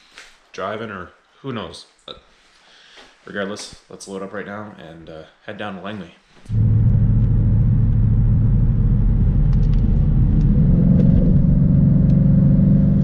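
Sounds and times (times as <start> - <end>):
car engine and exhaust: 6.5 - 13.0.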